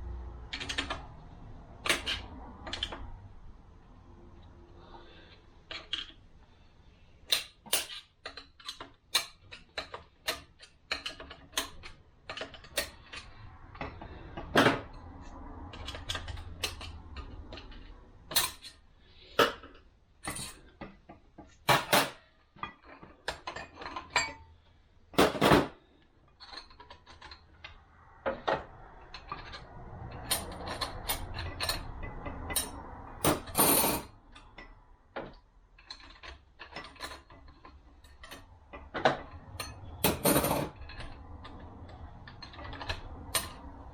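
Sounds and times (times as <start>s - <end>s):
metal parts clinking: 7.3s - 14.9s, 21.6s - 24.4s, 26.4s - 43.7s.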